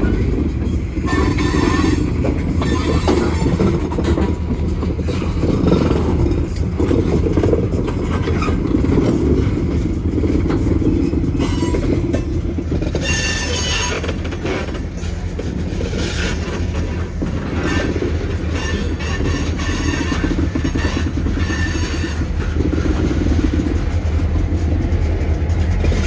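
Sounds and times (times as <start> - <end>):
train wheels squealing: 0.0 - 3.8, 10.8 - 22.6
diesel locomotive engine rumble: 0.0 - 26.0
railcar clanks: 0.0 - 26.0.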